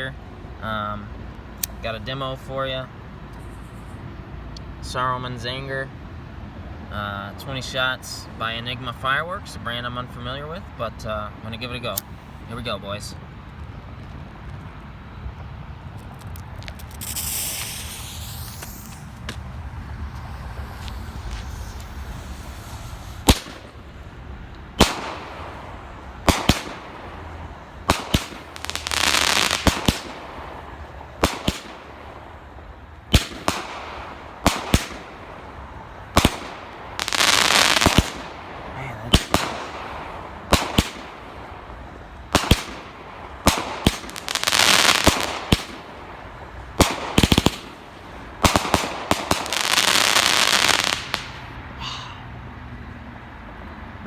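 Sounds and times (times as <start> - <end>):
firework crackling: 14.9 - 51.6
firework launch and break reports: 15.7 - 51.6.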